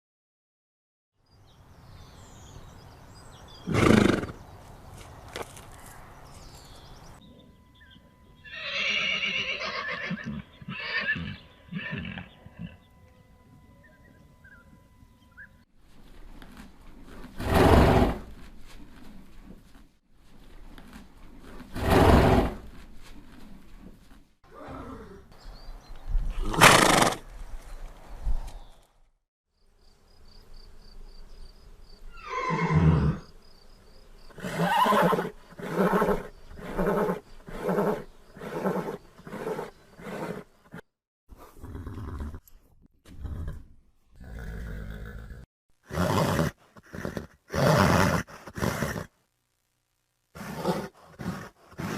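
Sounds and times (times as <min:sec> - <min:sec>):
horses neighing: 0:03.6 - 0:04.4, 0:08.4 - 0:12.8, 0:32.1 - 0:33.3, 0:34.4 - 0:40.5.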